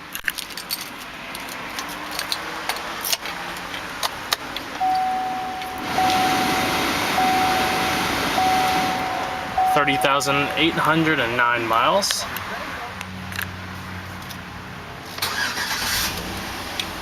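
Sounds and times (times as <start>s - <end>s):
keys jangling: 0.1s - 3.9s
car warning chime: 4.8s - 12.0s
steady rushing noise: 5.3s - 12.3s.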